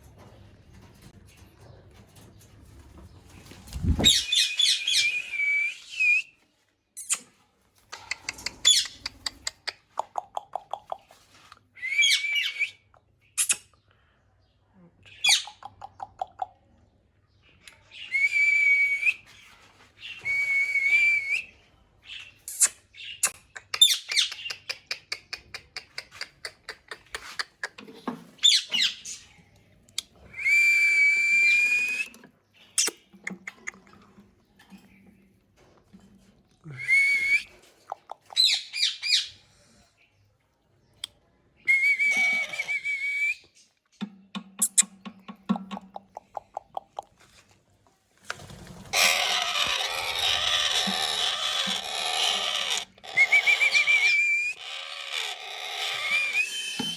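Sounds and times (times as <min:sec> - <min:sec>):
parrot whistling and chirping: 0:03.9 - 0:06.3, 0:11.8 - 0:12.8, 0:53.0 - 0:54.8, 0:55.8 - 0:56.9.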